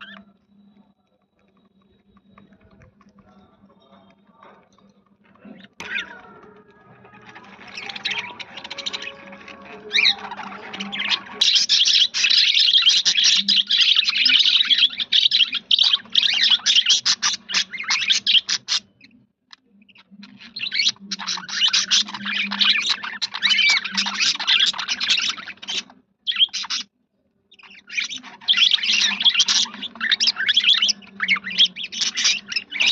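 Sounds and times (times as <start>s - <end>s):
budgerigars chattering: 7.4s - 19.1s, 19.9s - 26.9s, 27.5s - 32.9s.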